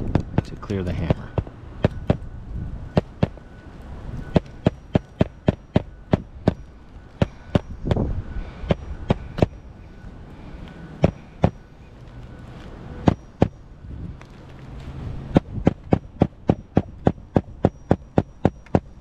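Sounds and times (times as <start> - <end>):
hammer driving nails into shingle: 15.3 - 19.0.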